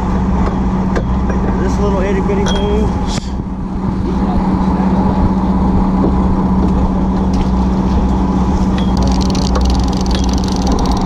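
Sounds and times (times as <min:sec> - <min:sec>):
boat engine rumbling: 0:00.0 - 0:11.0
faint clicking: 0:09.0 - 0:11.0.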